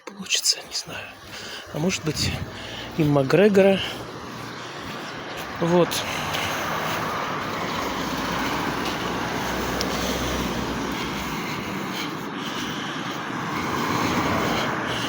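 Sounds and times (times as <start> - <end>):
passing cars on road: 0.6 - 15.0.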